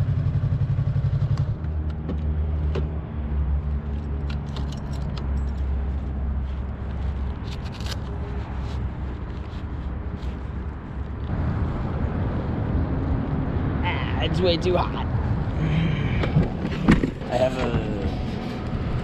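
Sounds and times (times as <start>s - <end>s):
motorcycle engine running: 0.0s - 1.8s
light clicks and rattles: 3.9s - 6.0s.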